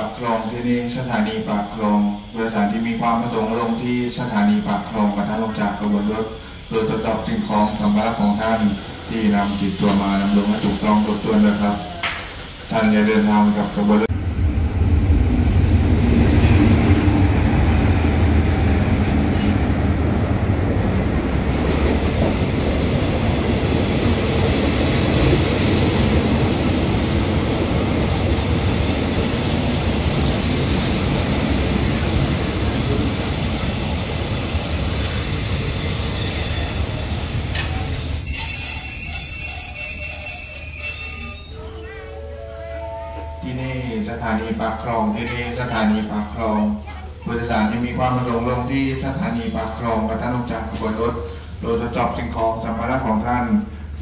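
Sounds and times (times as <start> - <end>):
train wheels rumbling on rail: 0.0 - 41.7
high wheel squeals: 26.6 - 31.8, 35.0 - 43.9.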